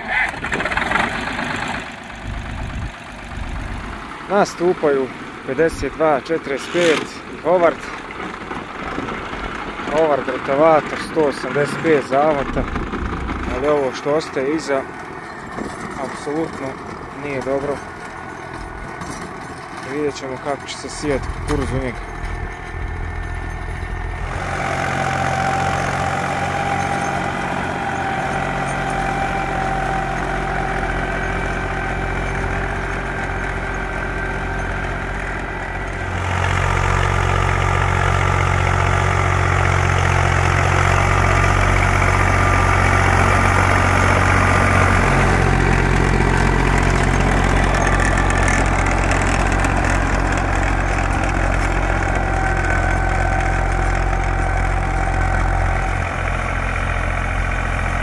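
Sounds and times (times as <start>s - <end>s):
diesel tractor running under load: 0.0s - 58.0s.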